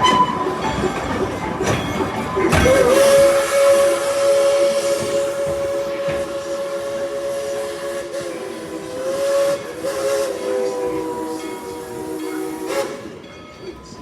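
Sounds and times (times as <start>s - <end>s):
steam locomotive whistle: 0.0s - 0.6s, 2.5s - 13.3s
steam hissing: 2.5s - 13.3s.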